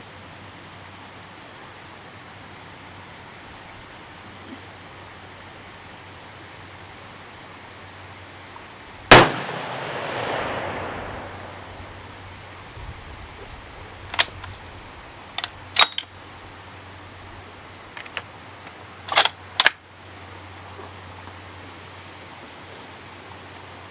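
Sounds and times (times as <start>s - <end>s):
rifle shot echoing: 9.1s - 12.0s
rifle bolt metallic clicks: 14.1s - 14.6s, 15.4s - 16.2s, 17.8s - 19.8s.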